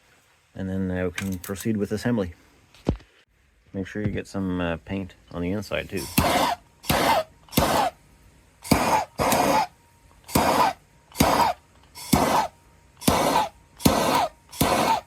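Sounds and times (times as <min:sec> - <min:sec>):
aerosol can spraying: 0:08.6 - 0:09.7, 0:10.3 - 0:15.0.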